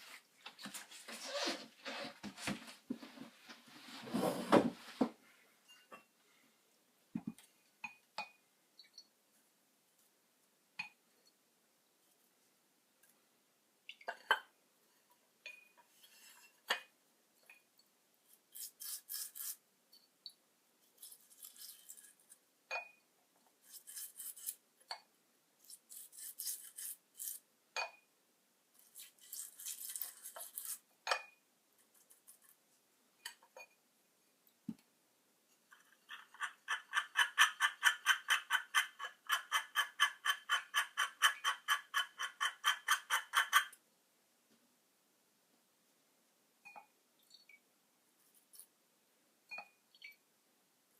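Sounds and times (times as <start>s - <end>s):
hand scraping and rubbing: 0.0s - 5.2s, 18.3s - 19.6s.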